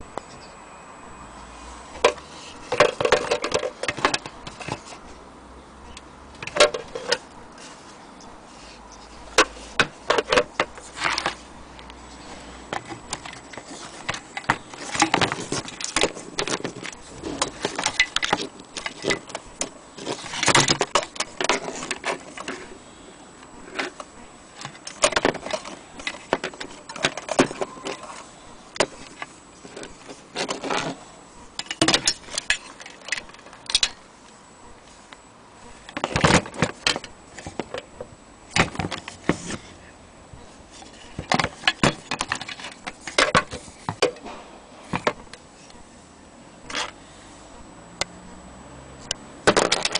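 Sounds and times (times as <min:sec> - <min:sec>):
metal lantern parts clinking: 0:31.6 - 0:34.0.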